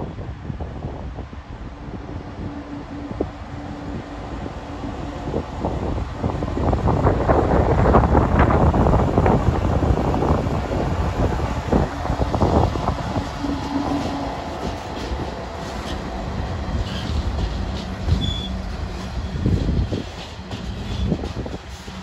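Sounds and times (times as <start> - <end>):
train wheels rumbling on rails: 0.0 - 22.0
high wheel squeal: 16.7 - 22.0.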